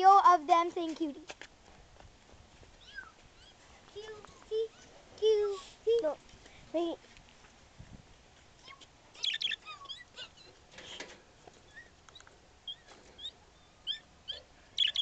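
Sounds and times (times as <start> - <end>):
birds chirping: 2.8 - 5.0, 8.6 - 15.0.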